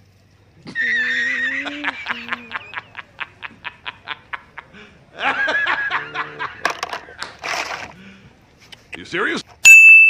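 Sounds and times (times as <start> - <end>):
snickering laugh: 0.6 - 7.6.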